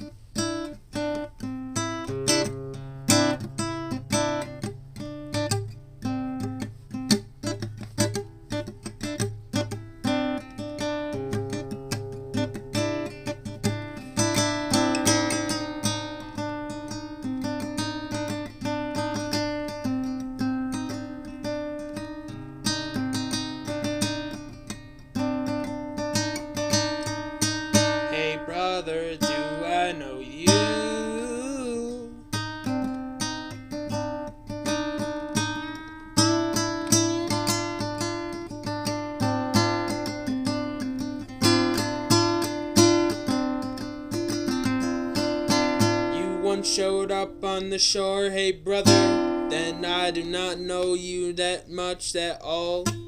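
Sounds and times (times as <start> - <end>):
acoustic guitar strumming: 0.0 - 53.0.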